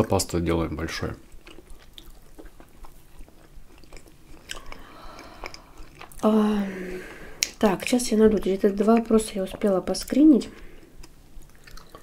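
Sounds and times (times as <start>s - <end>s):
person chewing pancake: 1.2s - 6.3s, 10.5s - 12.0s
wet mouth clicks: 3.8s - 6.2s, 11.0s - 12.0s.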